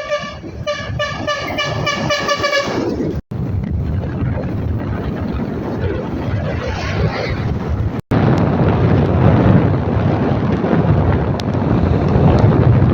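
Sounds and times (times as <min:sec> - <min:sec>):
truck horn short blasts: 0:00.0 - 0:03.0
low engine and road rumble: 0:00.0 - 0:12.9.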